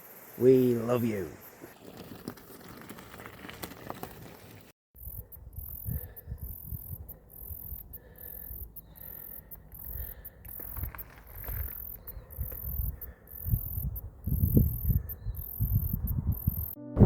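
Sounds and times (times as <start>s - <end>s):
high-pitched insect chorus: 0.0s - 1.7s, 5.0s - 16.8s.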